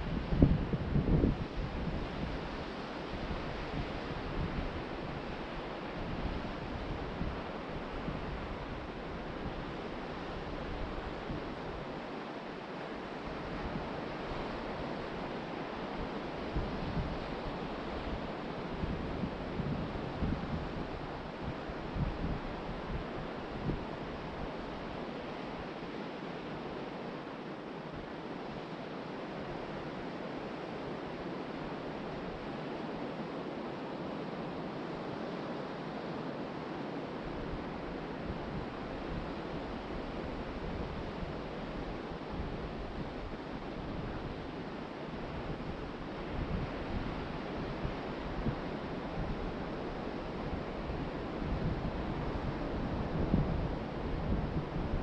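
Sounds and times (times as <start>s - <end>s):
wind buffeting microphone: 0.0s - 11.8s, 37.3s - 55.0s
ocean surf washing onto beach: 0.0s - 55.0s.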